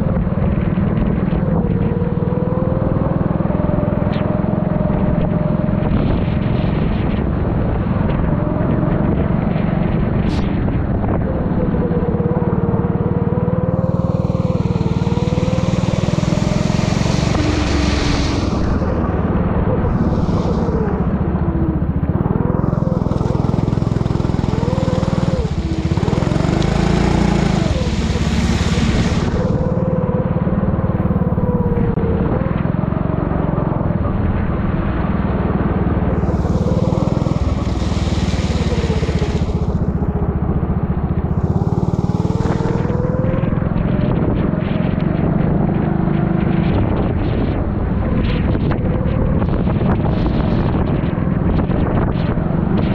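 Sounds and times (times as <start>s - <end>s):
kart engine revving: 11.1s - 52.9s
rushing hiss of wind: 13.7s - 32.0s, 33.3s - 52.9s
hiss: 14.4s - 19.0s, 19.8s - 21.6s, 24.4s - 29.8s, 36.1s - 39.8s.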